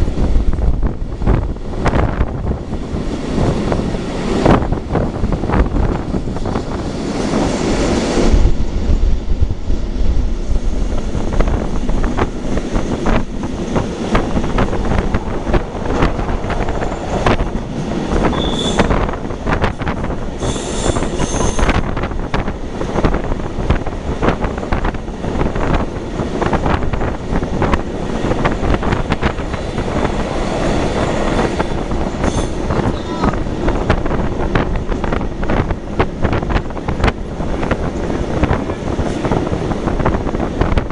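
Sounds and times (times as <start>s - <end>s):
wheel squealing on rail: 16.8s - 19.2s, 20.4s - 21.9s, 30.4s - 33.4s.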